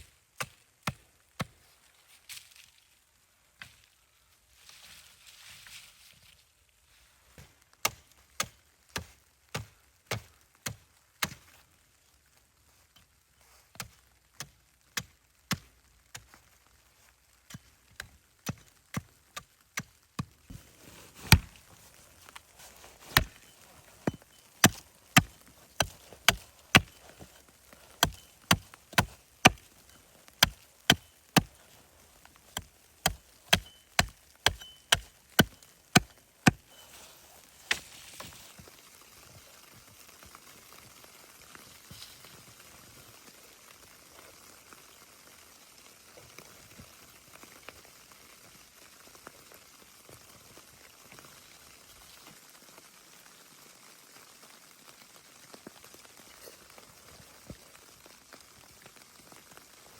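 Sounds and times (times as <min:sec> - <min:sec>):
axe chopping wood: 0:21.2 - 0:21.7, 0:22.6 - 0:29.7, 0:30.4 - 0:31.6, 0:32.5 - 0:36.6.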